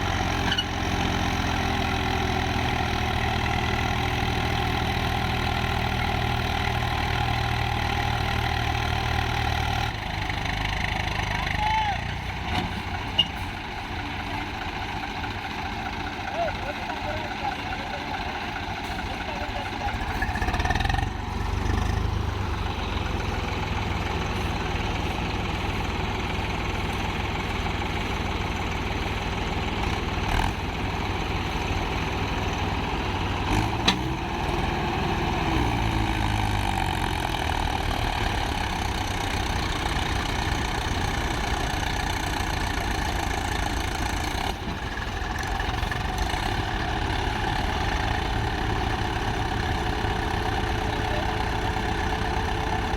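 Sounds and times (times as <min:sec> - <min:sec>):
tractor diesel engine running: 0:00.0 - 0:52.9.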